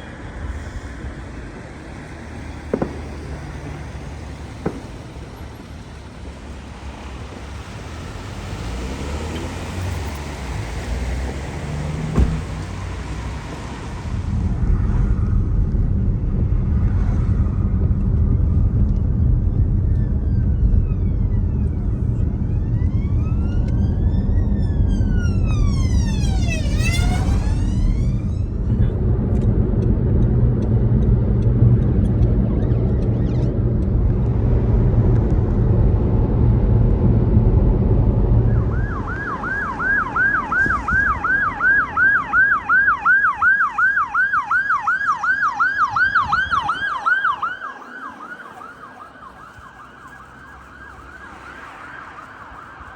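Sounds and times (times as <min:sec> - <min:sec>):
low rumble: 0:13.8 - 0:41.6
siren wailing: 0:17.2 - 0:29.2, 0:31.8 - 0:34.0, 0:38.0 - 0:52.9
siren fast yelp: 0:20.0 - 0:28.7, 0:38.5 - 0:52.9.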